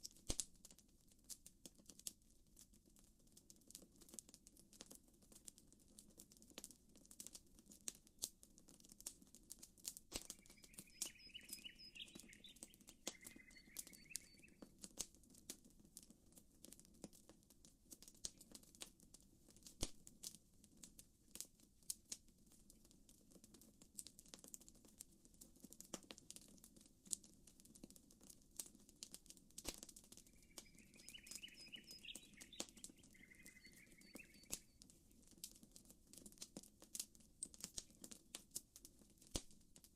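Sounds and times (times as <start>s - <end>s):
campfire crackling and popping: 0.0s - 39.9s
bird chirping: 10.2s - 14.6s, 30.2s - 34.8s
faint low hiss: 28.4s - 39.9s.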